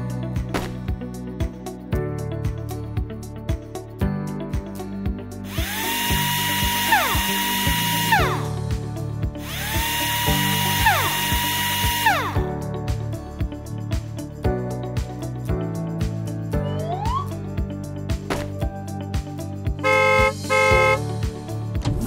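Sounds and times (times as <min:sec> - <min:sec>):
background music with beat: 0:00.0 - 0:22.0
toy drill whirring: 0:05.5 - 0:08.5, 0:09.4 - 0:12.4, 0:19.8 - 0:21.0.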